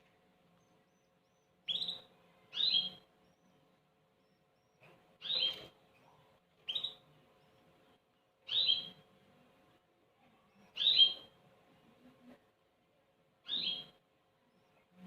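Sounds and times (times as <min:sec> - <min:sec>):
bird chicks chirping: 0:00.6 - 0:03.6, 0:04.2 - 0:07.6, 0:08.4 - 0:09.0, 0:10.7 - 0:11.3, 0:13.4 - 0:14.0.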